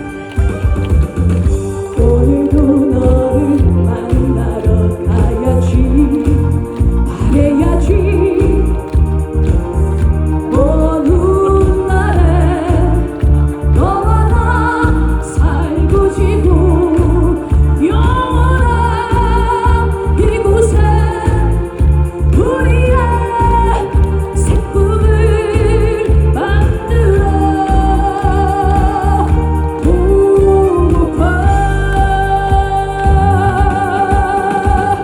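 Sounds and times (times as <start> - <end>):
backing track with bass beat: 0.0 - 35.0
woman singing with vibrato: 1.4 - 35.0.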